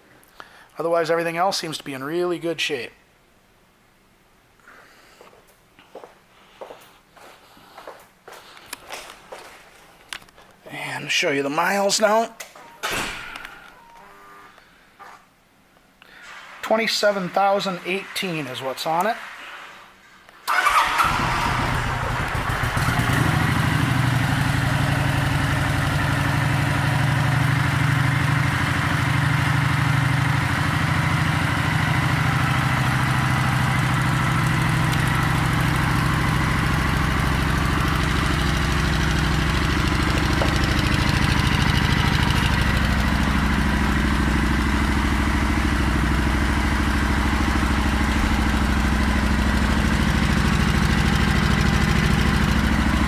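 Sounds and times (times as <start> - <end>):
motorcycle engine starting and idling: 20.5 - 53.0.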